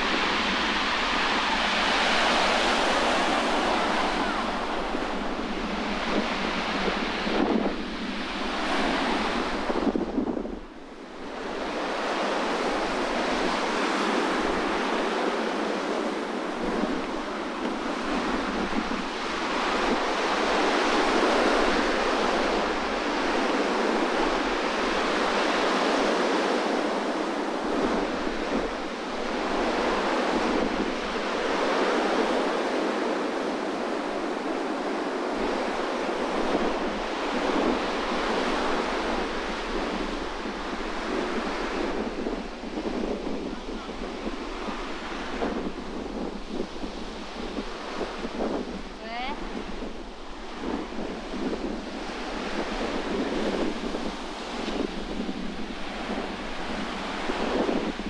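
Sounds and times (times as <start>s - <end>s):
sea surf roaring: 0.0s - 58.0s
wind buffeting microphone: 0.0s - 58.0s.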